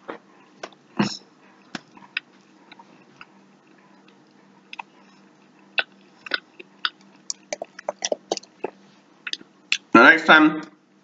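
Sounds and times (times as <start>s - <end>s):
person chewing food: 1.5s - 9.8s
wet mouth clicks and smacks: 5.8s - 9.9s.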